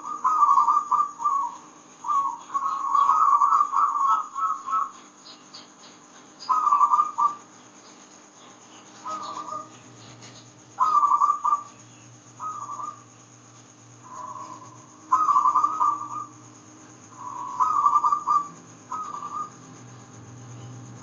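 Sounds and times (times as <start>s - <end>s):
dove cooing: 0.0s - 5.1s, 6.4s - 7.5s, 8.8s - 13.2s, 14.0s - 19.7s
faint low hum: 0.0s - 21.0s.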